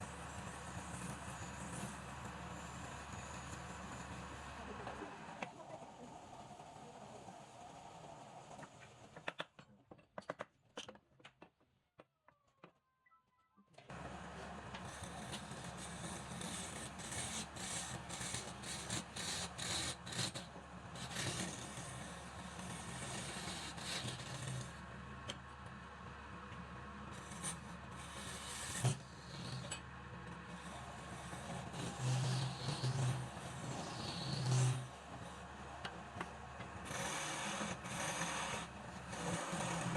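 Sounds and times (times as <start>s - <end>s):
tool rasping against spinning wood: 0.1s - 5.1s, 14.0s - 24.8s, 27.2s - 29.8s, 30.4s - 39.9s
wood lathe motor humming: 14.0s - 25.1s, 30.3s - 39.9s.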